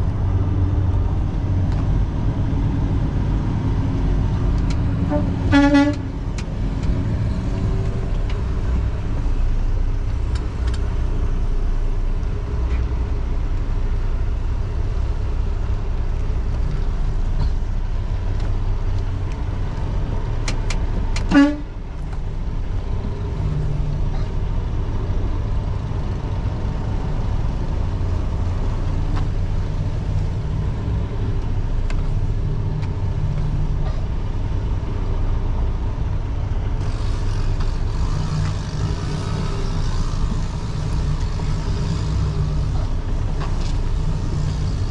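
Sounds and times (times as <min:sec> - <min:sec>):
road noise: 0:00.0 - 0:44.9
truck engine rumble: 0:00.0 - 0:44.9.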